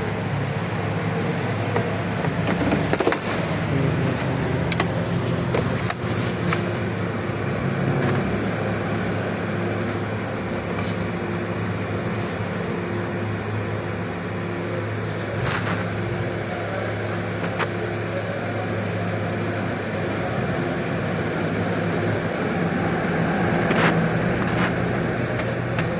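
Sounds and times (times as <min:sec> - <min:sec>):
car engine idling: 0:00.0 - 0:17.7.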